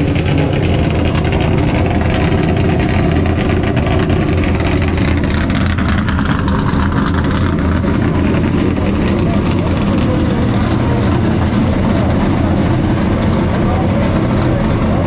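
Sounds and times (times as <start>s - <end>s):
race car engine idling: 0.0s - 15.0s.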